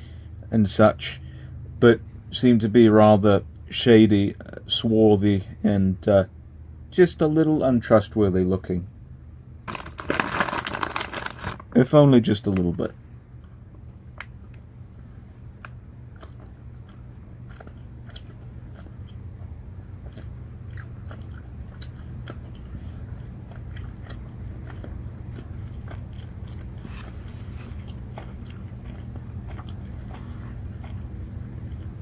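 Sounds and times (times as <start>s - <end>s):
steady low hum: 0.0s - 32.0s
person chewing gummy candy: 9.7s - 11.6s, 15.5s - 32.0s.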